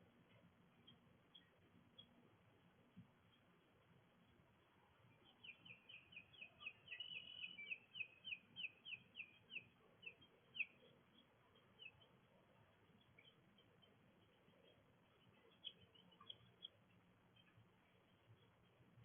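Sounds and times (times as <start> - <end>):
songbird whistling: 5.4 - 9.6.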